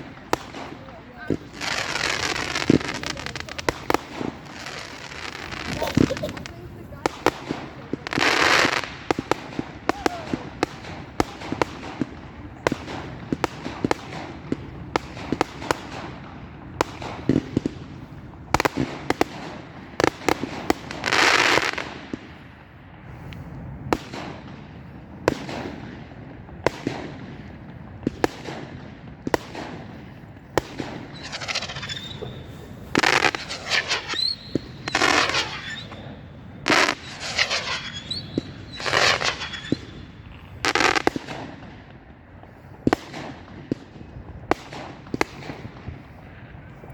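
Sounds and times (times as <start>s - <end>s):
firework whistling: 0.0s - 16.2s, 18.6s - 22.2s, 29.4s - 41.6s
fireworks banging: 0.0s - 46.9s
rapid firework reports: 0.0s - 46.9s.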